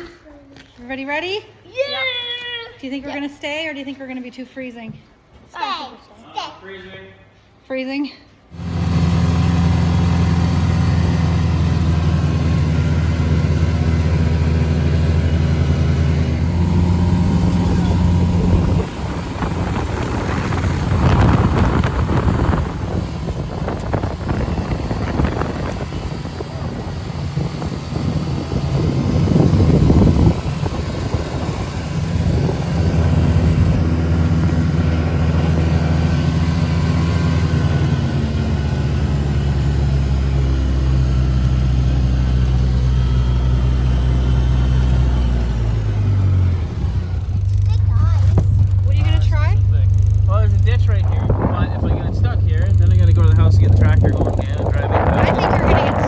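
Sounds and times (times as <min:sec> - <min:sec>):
utility vehicle engine rumbling: 0:08.5 - 0:56.0
wind buffeting microphone: 0:08.6 - 0:43.2, 0:50.7 - 0:56.0.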